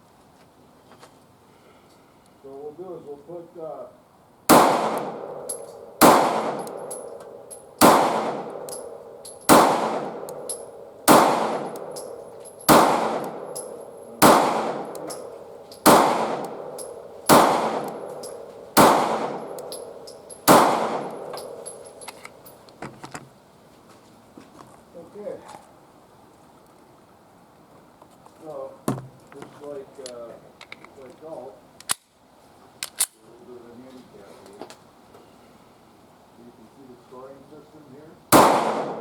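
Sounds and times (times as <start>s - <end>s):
pistol shots ringing: 4.5s - 22.5s, 38.3s - 39.0s.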